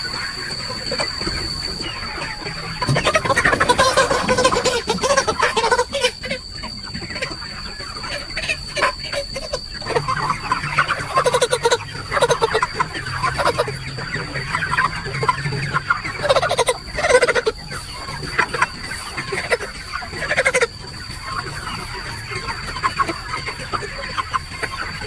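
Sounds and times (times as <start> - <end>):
chickens clucking: 0.0 - 25.0
high-pitched whine: 0.0 - 25.0.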